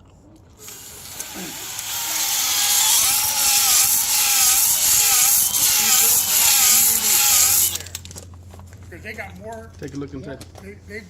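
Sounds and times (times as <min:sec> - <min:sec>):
air grinder on metal: 0:00.6 - 0:08.0.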